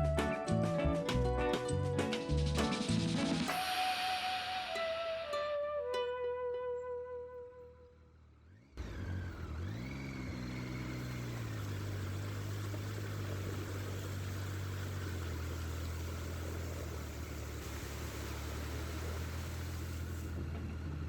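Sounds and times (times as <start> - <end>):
motorcycle engine accelerating: 7.8 - 21.0.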